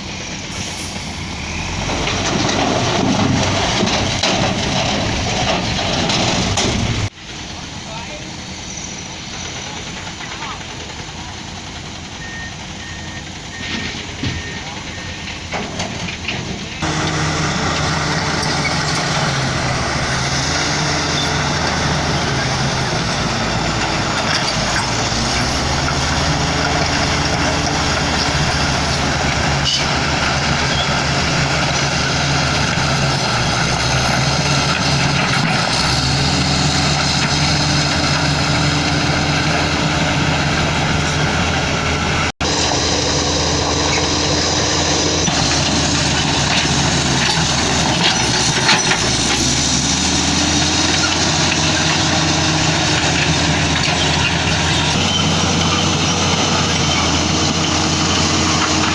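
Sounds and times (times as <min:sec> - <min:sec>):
diesel machinery engines running: 0:00.0 - 0:58.9.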